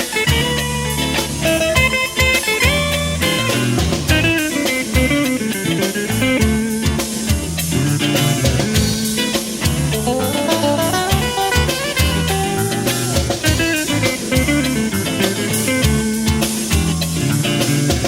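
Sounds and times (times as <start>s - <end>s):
bass: 0.0s - 18.0s
drum kit steady beat: 0.0s - 18.0s
electric guitar melody: 0.0s - 18.0s.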